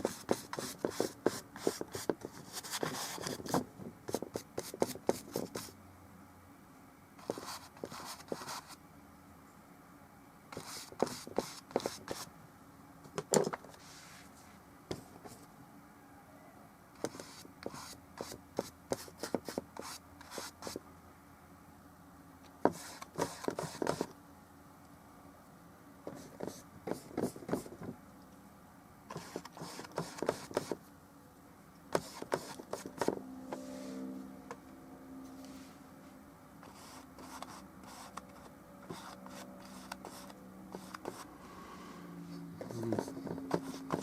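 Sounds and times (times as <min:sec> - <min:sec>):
faint low hum: 0:00.0 - 0:44.0
brush strokes on canvas: 0:13.8 - 0:14.6, 0:33.5 - 0:34.2, 0:35.4 - 0:38.2.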